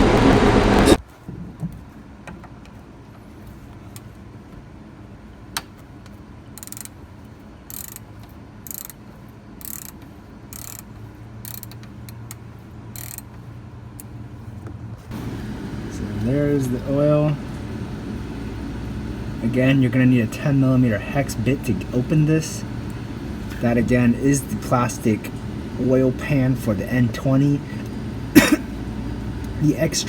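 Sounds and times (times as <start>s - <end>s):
ratchet wrench clicking: 6.6s - 7.0s, 7.7s - 13.4s.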